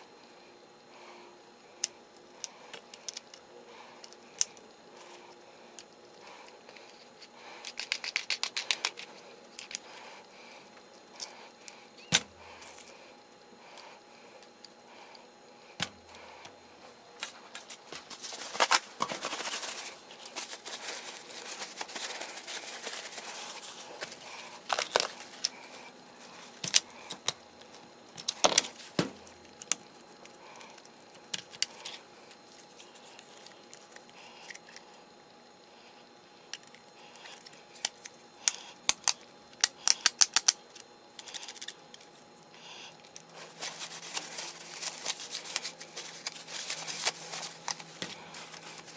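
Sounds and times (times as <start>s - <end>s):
plastic and metal parts clicking: 1.8s - 3.4s, 5.8s - 9.9s, 26.4s - 32.0s, 36.5s - 42.1s.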